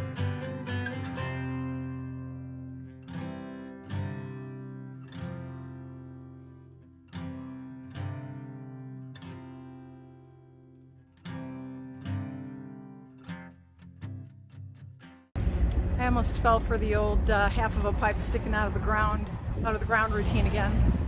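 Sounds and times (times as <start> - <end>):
acoustic guitar strummed chords: 0.0 - 15.2.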